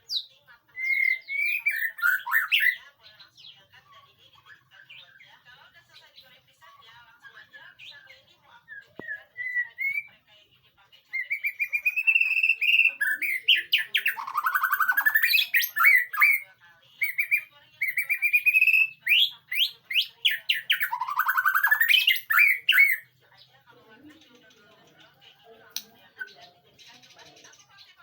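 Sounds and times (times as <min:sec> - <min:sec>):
bird singing whistles and trills: 0:00.0 - 0:03.6, 0:08.7 - 0:10.2, 0:11.2 - 0:16.4, 0:17.0 - 0:23.1.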